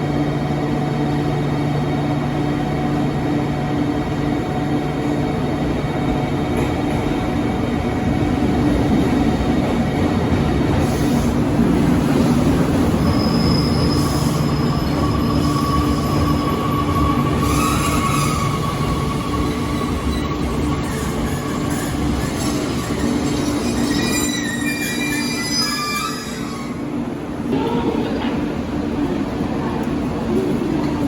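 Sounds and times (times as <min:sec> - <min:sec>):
train wheels rumbling: 0:04.9 - 0:31.0.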